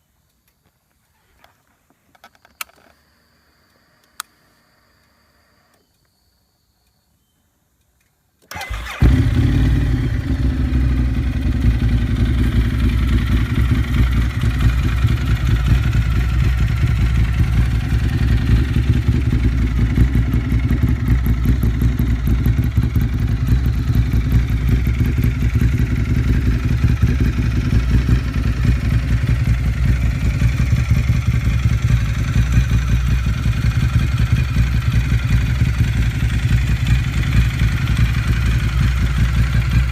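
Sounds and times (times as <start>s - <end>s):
motorcycle engine starting and idling: 8.4s - 39.9s.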